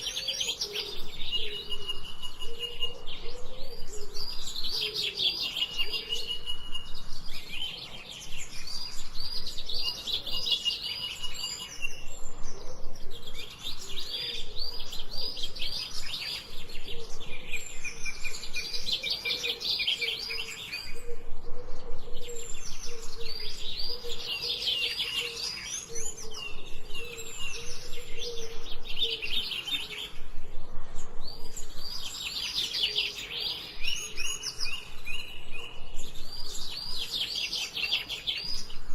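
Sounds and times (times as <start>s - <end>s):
birds trilling: 0.0s - 8.2s.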